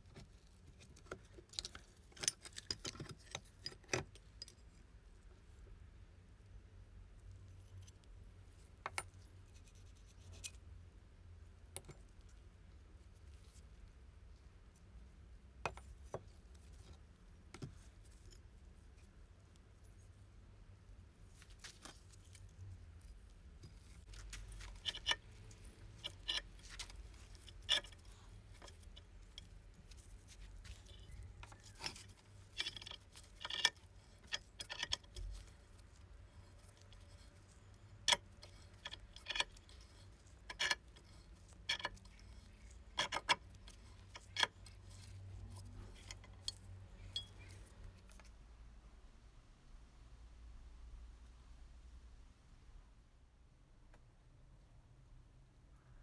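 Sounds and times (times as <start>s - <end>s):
metal parts and tools clinking: 23.6s - 48.3s.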